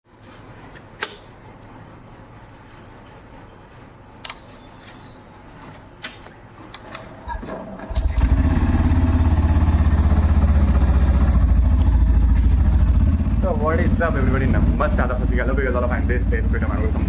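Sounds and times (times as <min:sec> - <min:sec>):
motorcycle engine starting and idling: 0:06.8 - 0:17.0.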